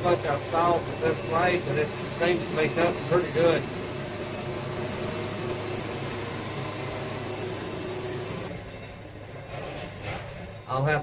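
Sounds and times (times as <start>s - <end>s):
saw blade cutting log: 0.0s - 8.5s
sawmill engine running: 0.0s - 8.6s.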